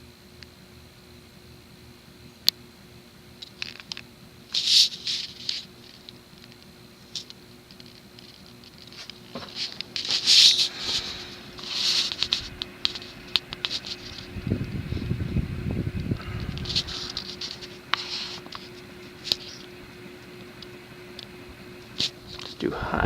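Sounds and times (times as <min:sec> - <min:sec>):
ceiling fan humming: 0:00.0 - 0:23.0
scratchy rustling and clicks: 0:07.1 - 0:15.2, 0:16.0 - 0:21.3.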